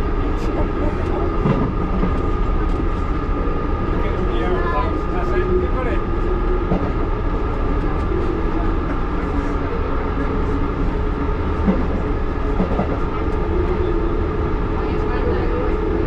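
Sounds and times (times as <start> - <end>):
constant hum: 0.0 - 16.0
train rumble on track: 0.0 - 16.0.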